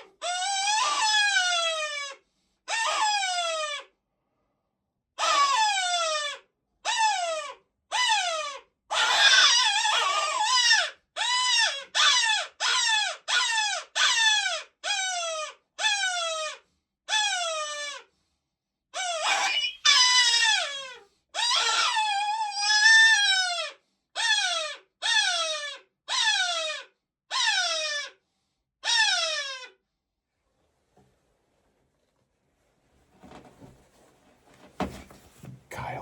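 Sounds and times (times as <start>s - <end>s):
electronic animal distress cries: 19.0s - 20.8s.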